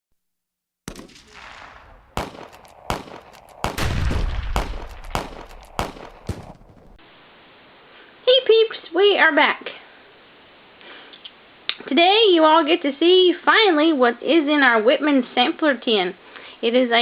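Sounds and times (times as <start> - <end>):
gunshots with echoes: 0.9 - 7.0.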